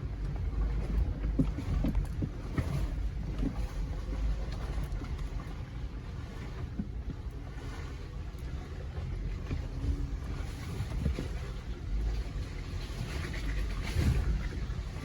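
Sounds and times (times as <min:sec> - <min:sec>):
engine running low: 0:00.0 - 0:15.0.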